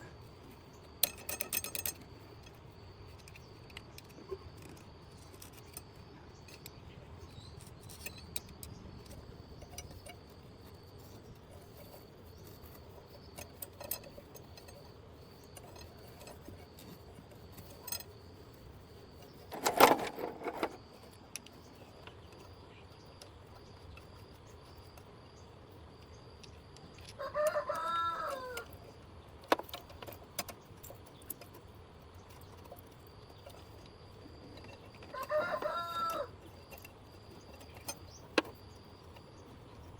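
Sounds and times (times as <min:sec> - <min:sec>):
light clicks of tools: 0:00.0 - 0:39.9
rooster crowing: 0:27.2 - 0:28.8, 0:35.1 - 0:36.4.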